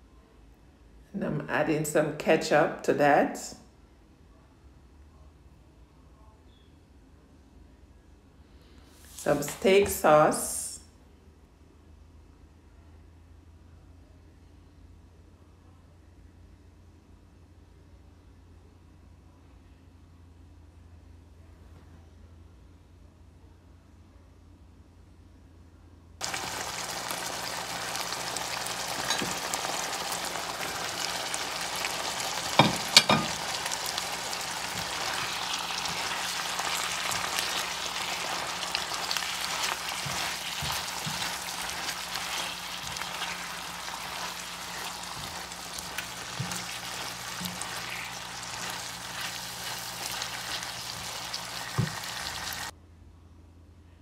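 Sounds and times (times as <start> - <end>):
food sizzling in a frying pan: 26.2 - 52.7
spatula knocking on a pan: 32.5 - 33.5, 51.7 - 52.0.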